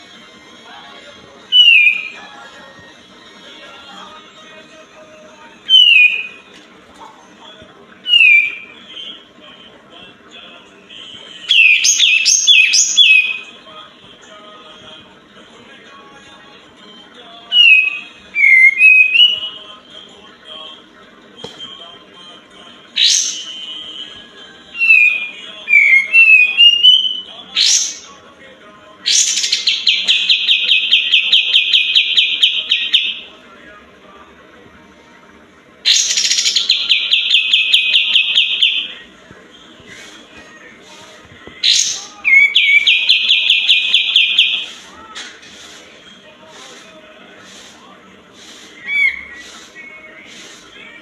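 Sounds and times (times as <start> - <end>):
bird whistling song: 1.5 - 2.2, 5.7 - 6.4, 8.1 - 9.2, 11.4 - 13.5, 17.5 - 19.6, 23.0 - 24.1, 24.8 - 28.1, 29.1 - 33.3, 35.9 - 39.0, 41.6 - 44.7, 48.8 - 49.6.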